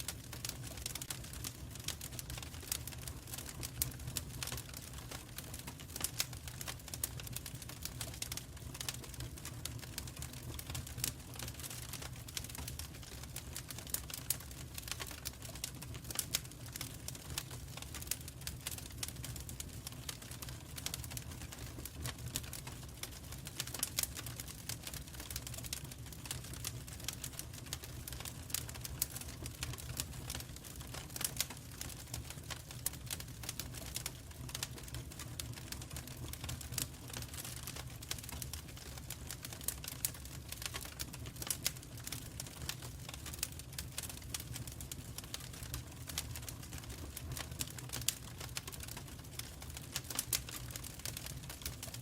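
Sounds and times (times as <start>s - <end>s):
low rumble of flames: 0.0s - 52.0s
wood fire crackling: 0.0s - 52.0s.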